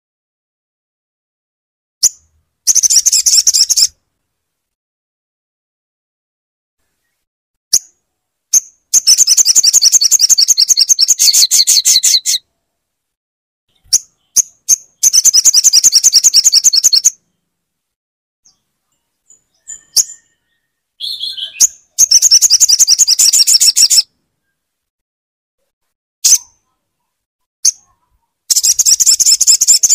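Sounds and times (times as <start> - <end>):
bird trilling: 8.5 - 12.4, 13.7 - 17.2, 19.5 - 24.1, 27.6 - 29.9
bird chips: 21.0 - 24.0, 27.6 - 29.9.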